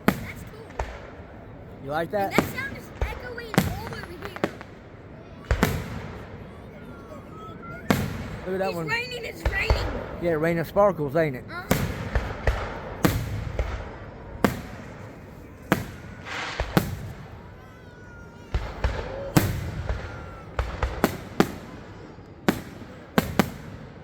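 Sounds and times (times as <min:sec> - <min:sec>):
fireworks bursting with echo: 0:00.0 - 0:24.0.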